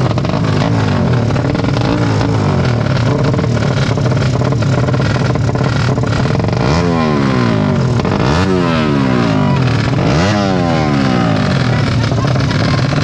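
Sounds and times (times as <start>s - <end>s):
racing motorcycle engines revving: 0.0s - 13.0s.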